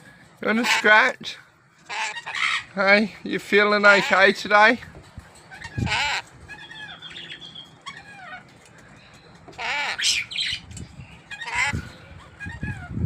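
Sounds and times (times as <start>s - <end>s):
parrot chirps and squawks: 0.5s - 1.0s, 1.8s - 2.8s, 3.9s - 4.4s, 5.4s - 8.7s, 9.5s - 13.0s.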